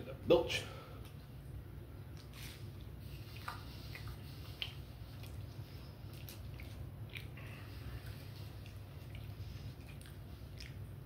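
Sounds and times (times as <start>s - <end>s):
low steady hum: 0.0s - 11.0s
quiet chewing: 2.1s - 11.0s
wet mouth clicks: 2.2s - 5.5s, 6.1s - 10.9s.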